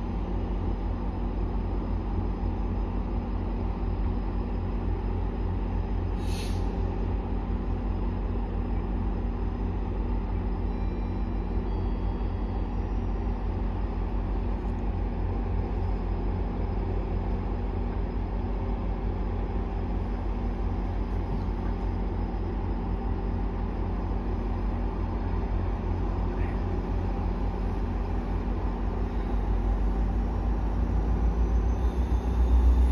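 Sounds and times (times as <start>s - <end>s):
diesel train engine drone: 0.0s - 32.9s
air hiss: 6.2s - 6.8s.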